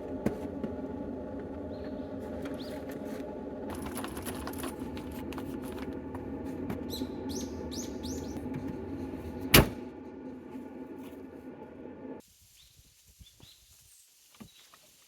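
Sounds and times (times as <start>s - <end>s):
van engine running: 0.0s - 12.2s
small rattling clicks: 3.7s - 5.9s
bird chirps: 6.9s - 8.4s.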